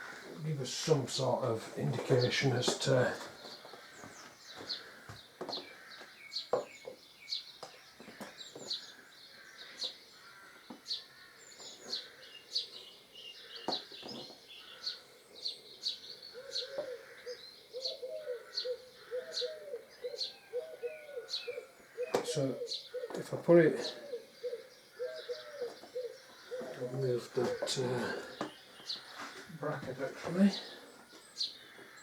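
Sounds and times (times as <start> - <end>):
small bird chirping: 5.5 - 29.7
dove cooing: 15.6 - 28.5.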